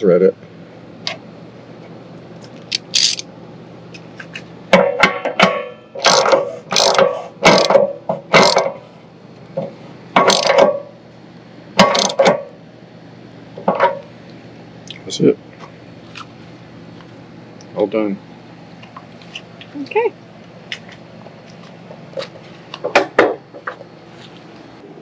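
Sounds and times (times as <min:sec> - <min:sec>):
ratchet wrench clicking: 0:02.7 - 0:03.2, 0:06.0 - 0:07.8, 0:08.4 - 0:08.7, 0:10.2 - 0:10.6, 0:11.8 - 0:12.2.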